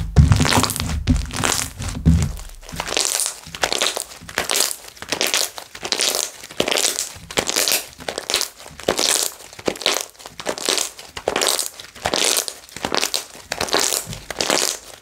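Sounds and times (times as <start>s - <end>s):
low thud: 0.0s - 2.9s
slime crackling and popping: 0.0s - 15.0s.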